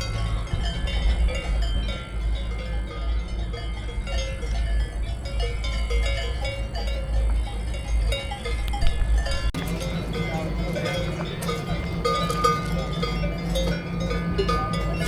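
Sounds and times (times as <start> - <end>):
cowbells clanking: 0.0 - 15.0
low rumble: 9.4 - 15.0.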